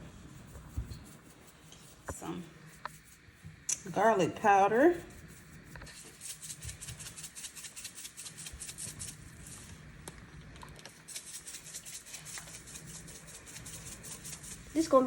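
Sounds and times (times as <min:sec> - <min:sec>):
spice shaker rattling: 0:05.9 - 0:09.7, 0:11.0 - 0:14.8.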